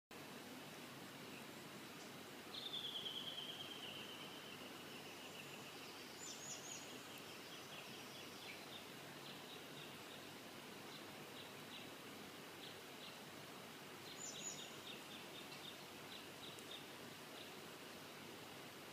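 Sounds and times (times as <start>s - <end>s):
faint background hiss: 0.1s - 18.9s
songbird trilling: 2.5s - 10.2s, 14.1s - 16.9s.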